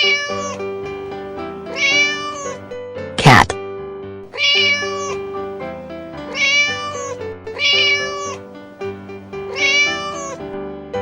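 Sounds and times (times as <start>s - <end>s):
cat meowing: 0.0s - 0.8s, 1.6s - 2.6s, 4.3s - 5.3s, 6.2s - 8.5s, 9.4s - 10.4s
background music: 0.0s - 11.0s.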